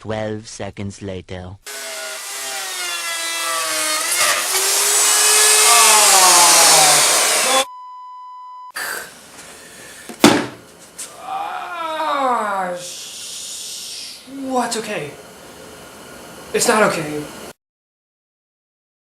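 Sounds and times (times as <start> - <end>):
router whine cutting wood: 1.7 - 7.7
bleep tone: 7.6 - 8.7
sharp knock: 10.2 - 10.6.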